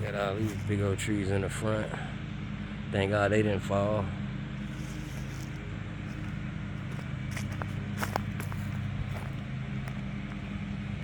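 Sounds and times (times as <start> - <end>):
footsteps in yard: 0.0 - 1.0, 4.6 - 11.0
low motor hum: 0.0 - 11.0.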